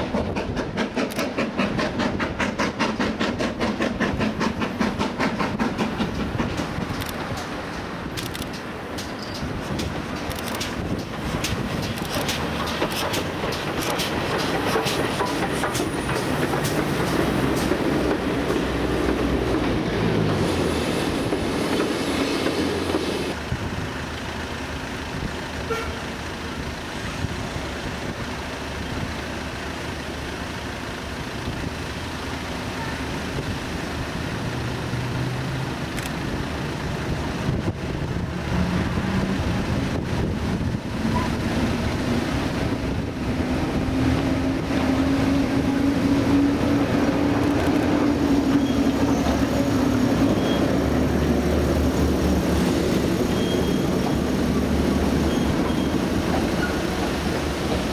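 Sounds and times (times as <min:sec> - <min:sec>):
train rumbling on tracks: 0:00.0 - 0:57.9.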